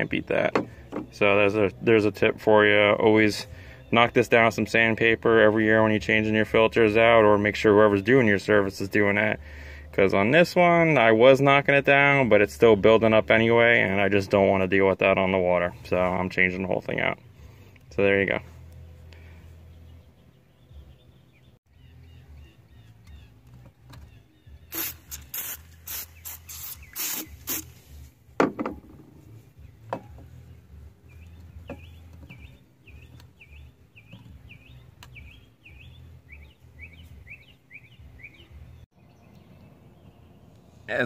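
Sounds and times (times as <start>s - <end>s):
bird chirping: 19.2s - 27.8s, 29.6s - 40.8s.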